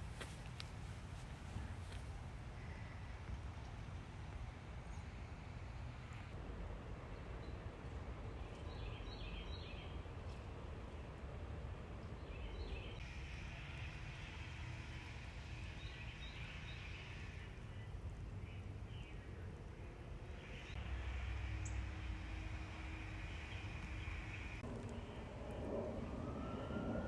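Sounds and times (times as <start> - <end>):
low rumble with faint hum: 0.0 - 27.0.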